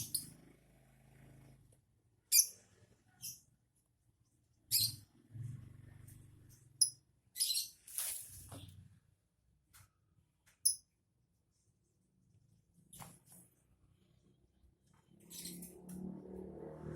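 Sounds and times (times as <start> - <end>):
bird chirping: 0.0 - 0.4, 2.3 - 3.5, 4.7 - 5.2, 6.7 - 7.8.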